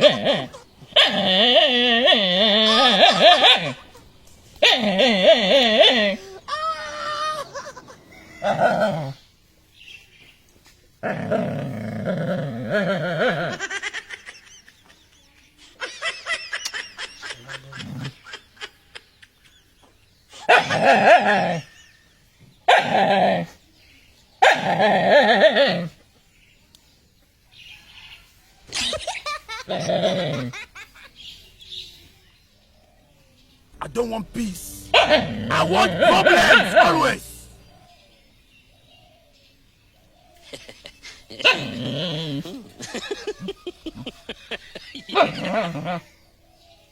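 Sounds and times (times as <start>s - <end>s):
dog barking: 0.0s - 1.3s, 2.1s - 3.9s, 4.6s - 5.0s, 20.5s - 21.3s, 22.7s - 23.0s, 24.4s - 24.8s, 34.9s - 37.1s
people laughing: 7.0s - 8.7s, 13.3s - 19.7s, 28.7s - 31.5s, 35.1s - 37.3s, 40.4s - 41.7s, 42.4s - 46.0s.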